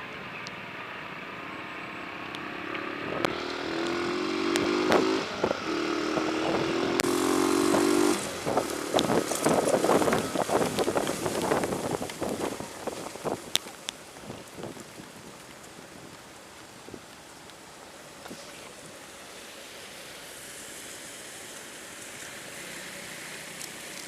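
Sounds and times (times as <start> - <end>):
rain and wind on microphone: 0.0 - 24.0
vehicle engine revving: 2.2 - 11.6.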